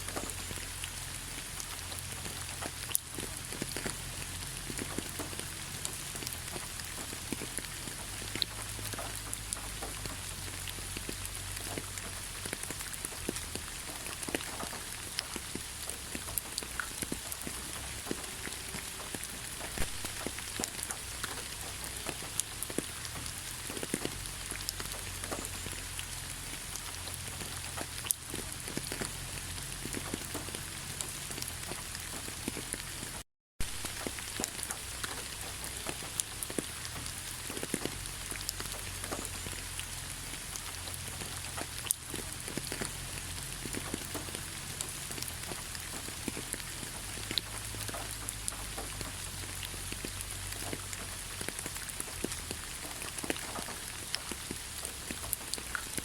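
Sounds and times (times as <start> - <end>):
raindrops tapping close by: 0.0 - 56.0
steady rain falling: 0.0 - 56.0.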